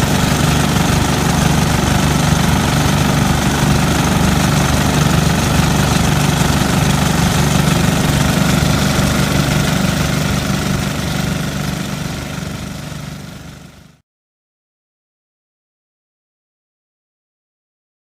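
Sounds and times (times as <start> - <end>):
small tractor engine running: 0.0 - 14.0.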